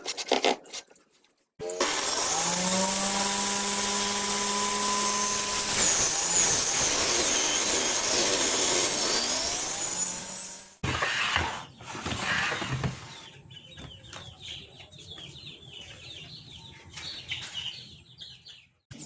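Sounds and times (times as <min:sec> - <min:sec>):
electric power tool running: 0:01.6 - 0:10.8.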